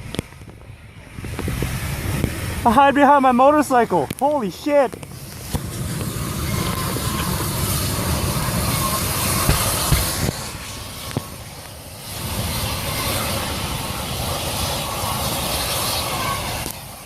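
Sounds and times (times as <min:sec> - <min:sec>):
fire cracks: 0:00.0 - 0:17.0
gas venting hissing roar: 0:00.0 - 0:17.0.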